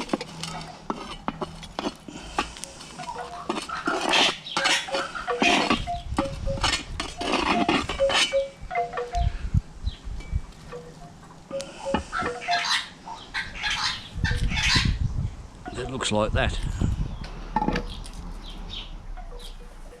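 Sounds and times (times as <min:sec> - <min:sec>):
metal cookware clinking and scraping: 0:00.0 - 0:02.0, 0:03.0 - 0:09.0.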